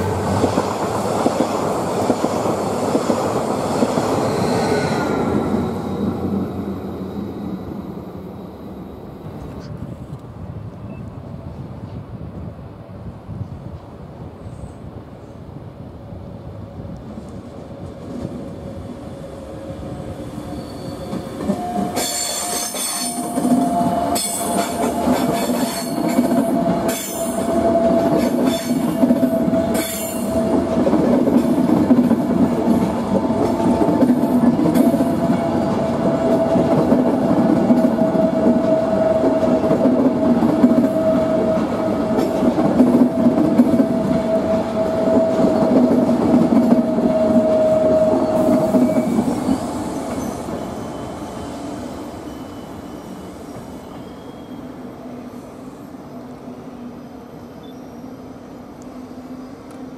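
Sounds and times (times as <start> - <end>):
train wheels rumbling and clacking: 0.0 - 7.9, 16.8 - 54.2
train wheel squeal: 4.2 - 6.6, 18.5 - 30.7, 37.7 - 46.0, 46.6 - 59.9.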